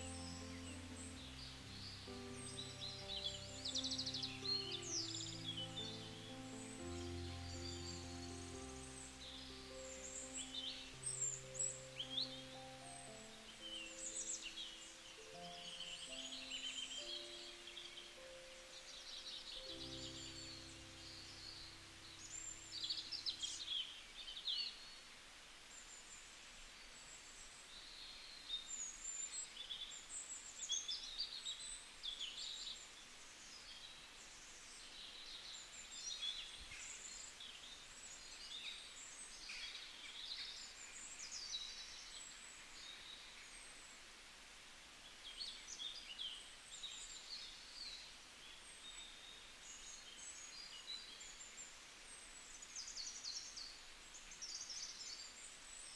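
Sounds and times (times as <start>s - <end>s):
birds twittering: 0.0s - 24.4s
faint background hiss: 0.0s - 55.9s.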